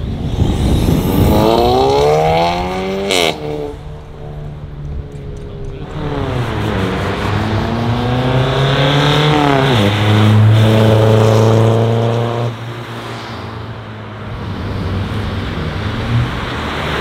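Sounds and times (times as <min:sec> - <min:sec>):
car engine accelerating hard: 0:00.2 - 0:12.6.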